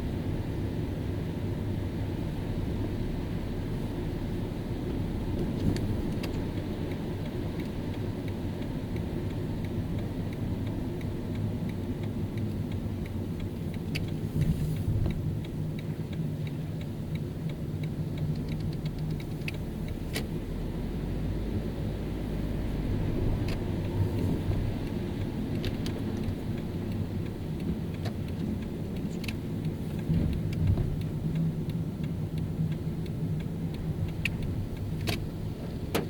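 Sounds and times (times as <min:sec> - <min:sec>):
car engine and tyre rumble: 0:00.0 - 0:36.0
faint regular ticking: 0:04.9 - 0:20.7, 0:23.4 - 0:36.0.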